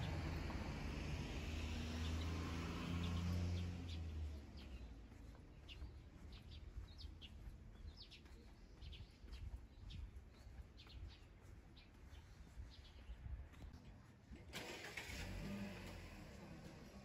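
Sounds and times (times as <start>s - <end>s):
vehicle rumble: 0.0s - 8.4s, 12.1s - 17.0s
small birds chirping: 0.0s - 14.3s.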